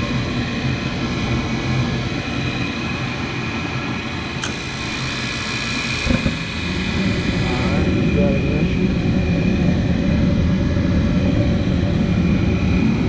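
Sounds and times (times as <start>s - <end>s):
furnace motor hum and whine: 0.0s - 13.0s
sharp click: 4.4s - 4.6s.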